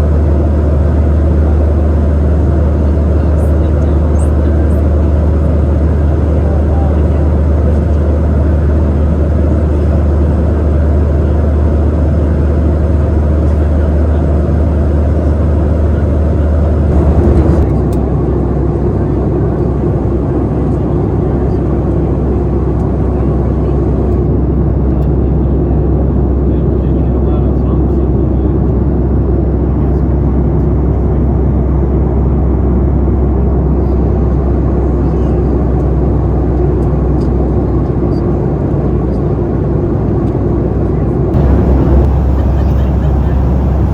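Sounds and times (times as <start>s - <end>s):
airliner cabin engine roar: 0.0s - 43.9s
deep hum: 3.8s - 17.9s, 41.4s - 43.9s
airflow past fuselage: 16.4s - 17.7s, 41.4s - 43.9s.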